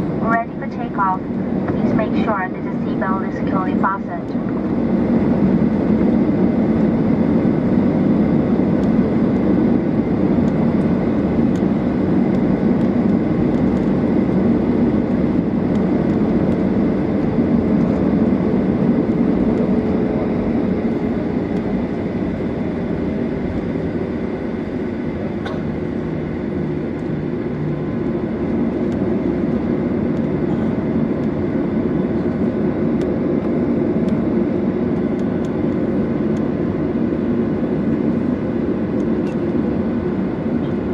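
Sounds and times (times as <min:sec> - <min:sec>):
jet engines at high thrust: 0:00.0 - 0:40.9.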